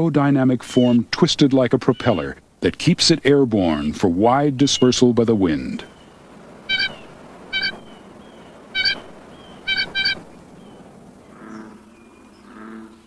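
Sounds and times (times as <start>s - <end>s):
bird nasal honks: 6.6s - 8.0s, 8.7s - 10.4s, 11.3s - 13.0s.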